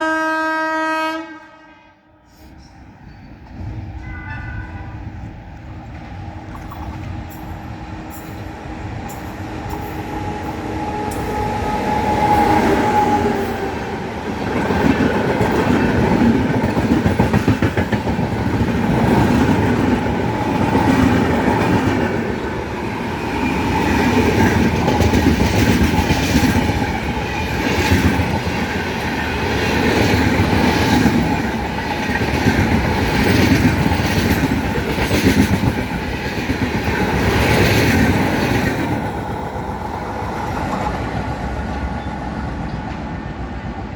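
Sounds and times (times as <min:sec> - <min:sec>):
train horn blast: 0:00.0 - 0:02.5, 0:04.0 - 0:05.2, 0:09.7 - 0:14.0
train wheels rumbling on rails: 0:02.3 - 0:43.9.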